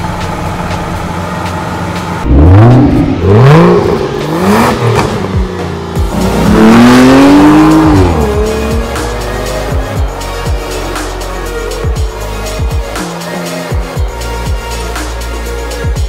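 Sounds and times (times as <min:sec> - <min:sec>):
car engine revving hard: 0:02.2 - 0:10.0.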